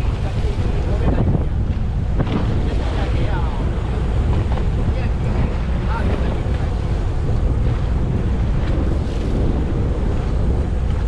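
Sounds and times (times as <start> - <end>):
water washing around boat: 0.0 - 11.0
wind buffeting microphone: 0.0 - 11.0.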